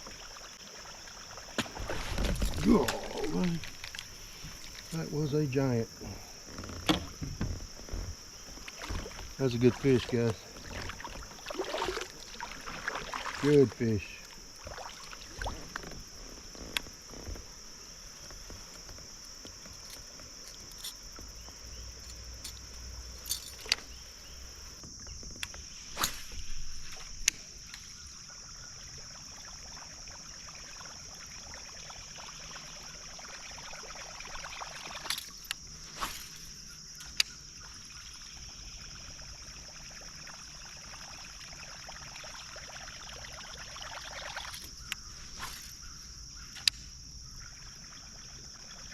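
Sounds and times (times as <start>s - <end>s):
insects droning: 0.0s - 48.9s
knocks and clicks in a kayak: 6.3s - 12.0s, 15.4s - 25.7s, 46.4s - 46.9s.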